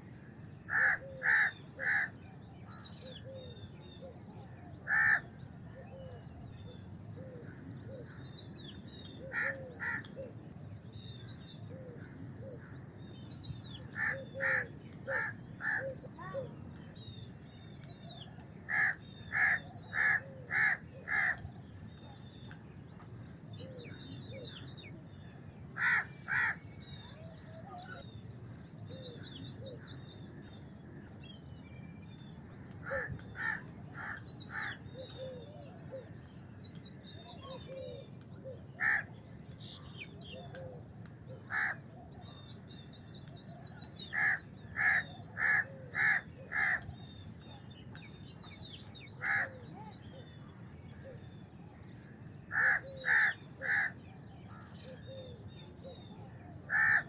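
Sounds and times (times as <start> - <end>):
small birds chirping: 0.0 - 57.0
crows cawing: 0.7 - 2.2, 4.8 - 5.3, 9.3 - 10.1, 13.9 - 16.3, 18.7 - 21.4, 25.8 - 26.7, 32.8 - 34.8, 38.8 - 39.1, 41.5 - 41.9, 44.1 - 46.8, 49.2 - 49.6, 52.5 - 54.0, 56.7 - 57.0.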